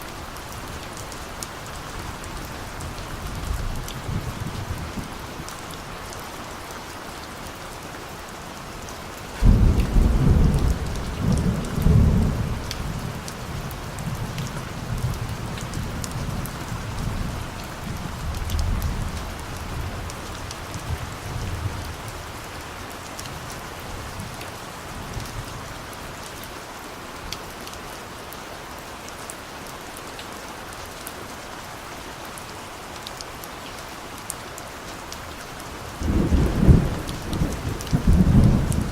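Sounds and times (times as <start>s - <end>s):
rain hiss: 0.0s - 38.9s
thunder rumbling: 36.0s - 38.9s.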